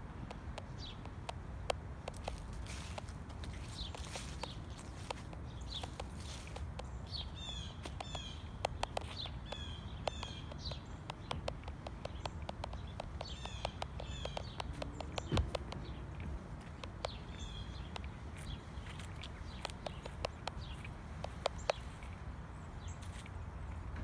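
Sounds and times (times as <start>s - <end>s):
low outdoor rumble: 0.0s - 24.0s
small songbirds chirping: 0.0s - 24.0s
sharp ticks: 0.2s - 22.2s.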